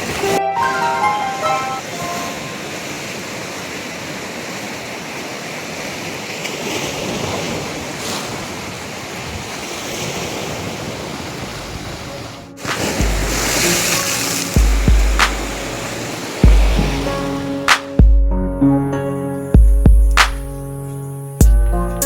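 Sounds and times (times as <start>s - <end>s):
surf washing onto beach: 0.0s - 18.0s.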